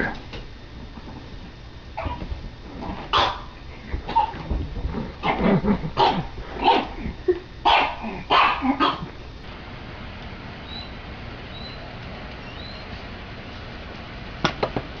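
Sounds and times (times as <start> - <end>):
steady background hiss: 0.0 - 15.0
dog barking: 3.1 - 3.5, 6.0 - 7.0, 7.7 - 9.1.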